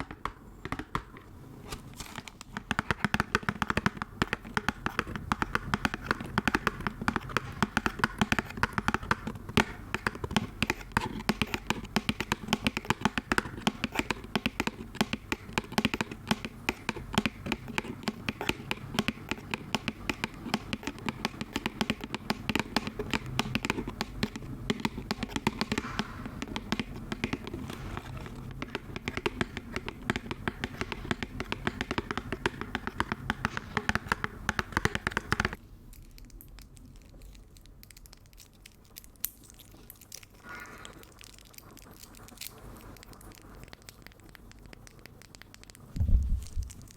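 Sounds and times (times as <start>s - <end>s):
fast dense tapping: 2.4s - 35.6s.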